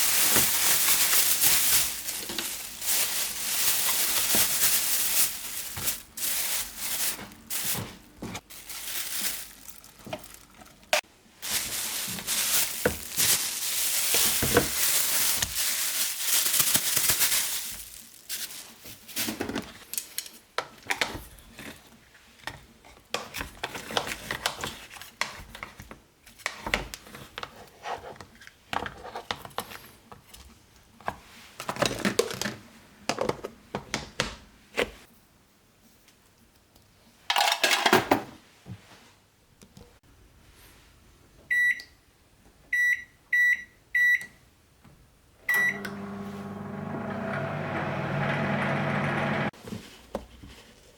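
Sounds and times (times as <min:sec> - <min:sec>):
rustling and crinkling: 0:00.0 - 0:34.0, 0:49.5 - 0:50.9.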